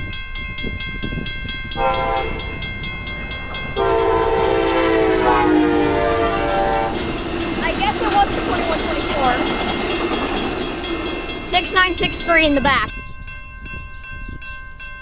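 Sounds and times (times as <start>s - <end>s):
crossing bell ringing: 0.0s - 15.0s
locomotive air horn: 1.8s - 2.6s, 3.8s - 7.1s.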